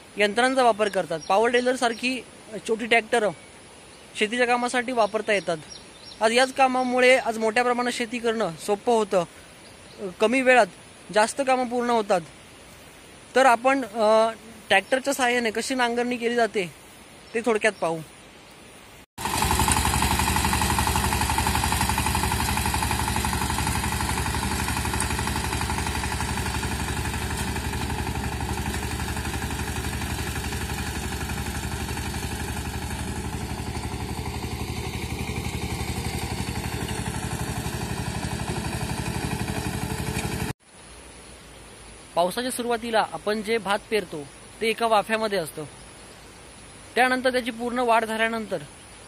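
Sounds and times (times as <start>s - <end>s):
power tiller engine chugging: 19.2s - 40.5s.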